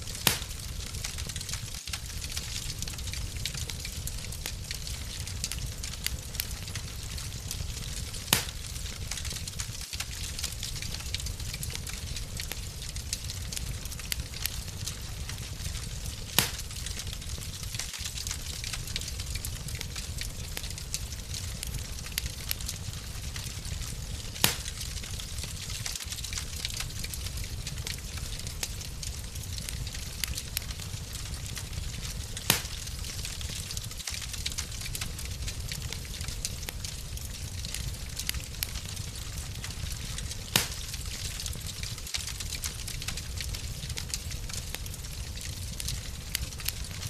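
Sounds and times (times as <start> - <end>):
fire crackling: 0.0 - 47.0
fire rumbling: 0.0 - 47.0
loud fire pop: 0.2 - 0.6, 8.3 - 8.6, 16.4 - 16.8, 24.4 - 24.9, 32.5 - 32.8, 40.5 - 40.9.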